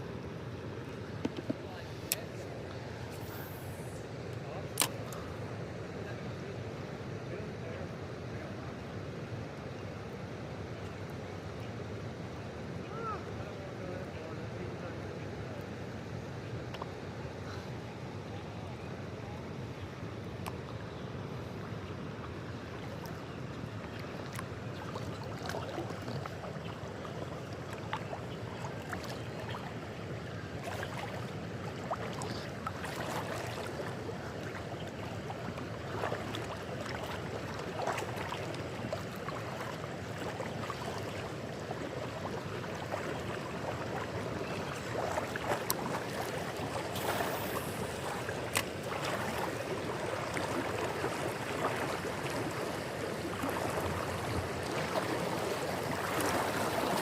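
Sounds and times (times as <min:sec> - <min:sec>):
river water running: 0:00.0 - 0:57.0
small clicks and splashes: 0:04.3 - 0:05.2, 0:30.6 - 0:41.4, 0:42.1 - 0:52.0.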